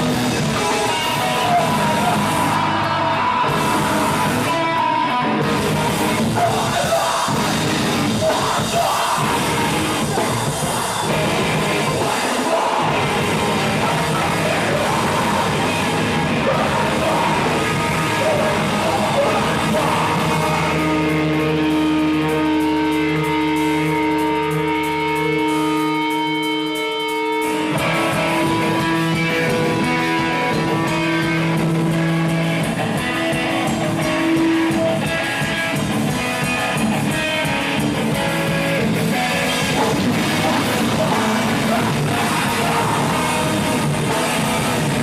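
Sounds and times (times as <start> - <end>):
person singing or yelling: 0.0 - 5.4, 6.0 - 21.8, 39.4 - 45.0
held guitar chords: 0.0 - 45.0
live rock band playing: 0.0 - 45.0.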